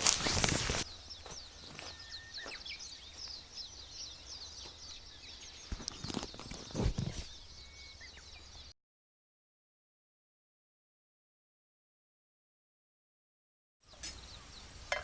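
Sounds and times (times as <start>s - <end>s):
campfire crackling: 0.0s - 0.9s
birds chirping: 0.0s - 8.8s, 13.8s - 15.0s.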